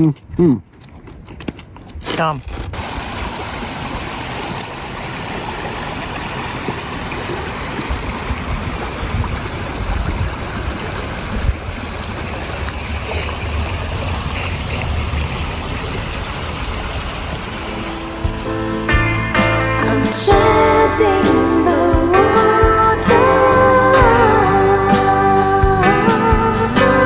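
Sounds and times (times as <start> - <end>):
stream trickling: 2.8 - 19.0.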